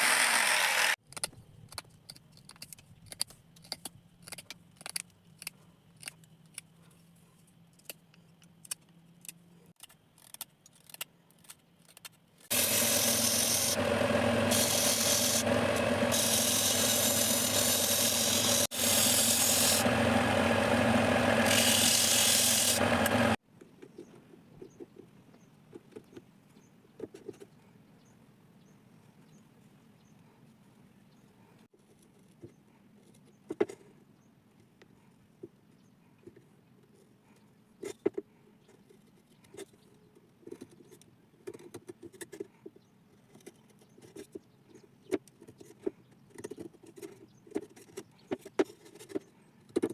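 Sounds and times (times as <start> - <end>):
electric power tool on wood: 0.0 - 1.0, 12.5 - 23.4.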